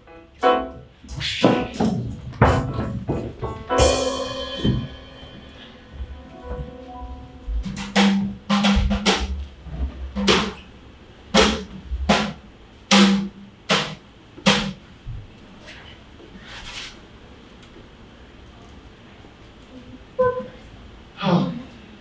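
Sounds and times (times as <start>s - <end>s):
sharp drum hits: 1.1s - 9.5s, 10.2s - 10.6s, 11.4s - 14.8s.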